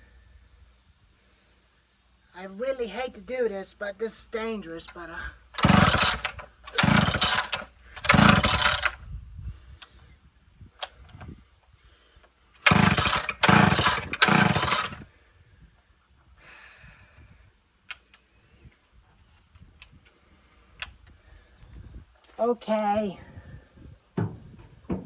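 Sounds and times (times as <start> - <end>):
chainsaw recoil starter pulls: 5.6 - 9.0, 12.6 - 15.1
engine turning over: 5.6 - 9.0, 12.6 - 15.1.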